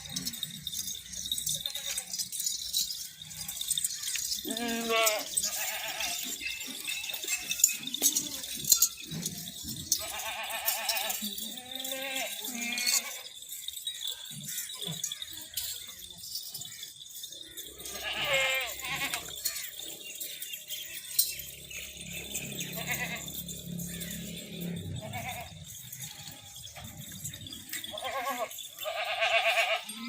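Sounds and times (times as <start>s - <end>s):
goats bleating: 0.0s - 13.6s, 17.8s - 19.9s, 22.1s - 30.0s.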